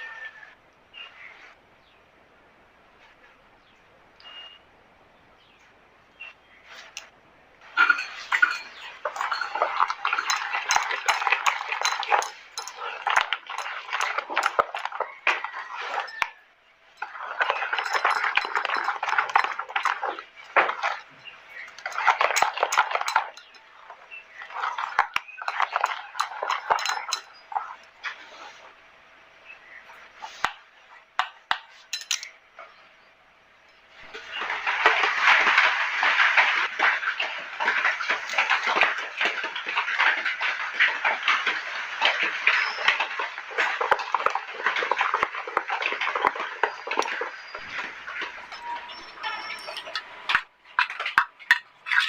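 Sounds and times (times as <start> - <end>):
wet batter mixing strokes: 6.6 - 28.9, 34.0 - 50.0
utensils scraping: 7.7 - 16.3, 17.0 - 28.7
dishes clinking and clattering: 7.7 - 16.4, 17.0 - 28.2, 31.7 - 32.4, 34.0 - 52.0.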